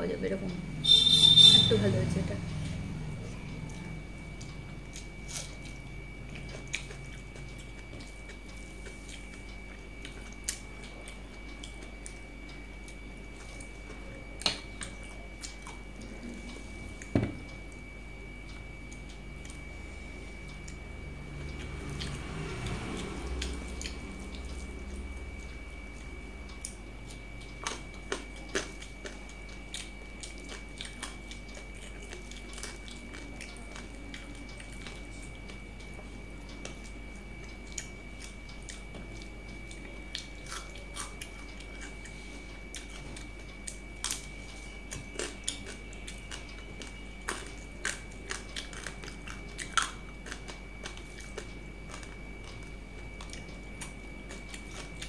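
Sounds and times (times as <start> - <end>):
steady high-pitched tone: 0.7 - 4.1
chewing with mouth clicks: 2.5 - 55.0.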